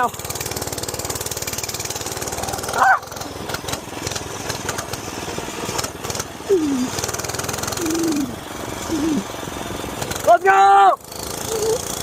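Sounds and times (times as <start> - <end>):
small engine puttering: 0.0 - 12.0.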